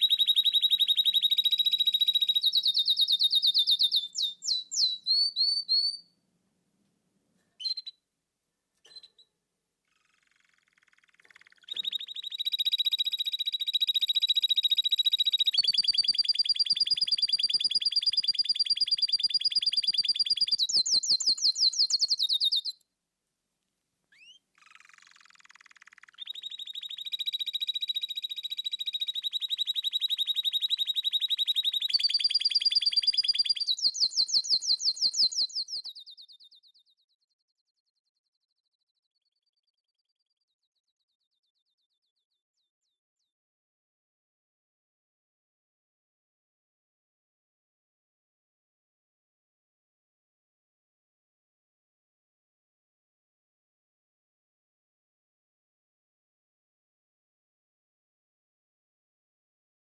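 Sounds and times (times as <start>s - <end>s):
canary singing fast trills: 0.0s - 6.2s, 7.6s - 8.0s, 8.8s - 22.8s, 24.1s - 37.2s.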